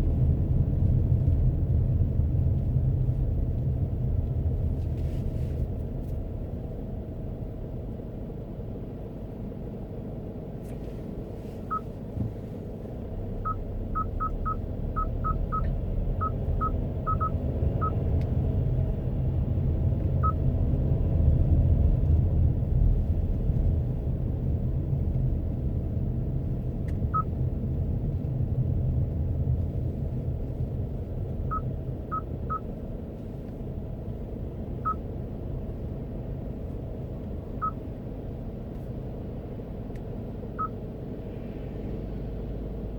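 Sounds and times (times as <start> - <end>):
car road and engine rumble: 0.0 - 42.9
short high electronic beeps: 13.5 - 18.0.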